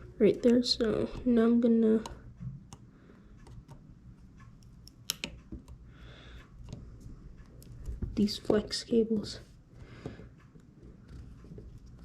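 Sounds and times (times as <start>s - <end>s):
small tools clicking and tapping: 4.5s - 5.8s.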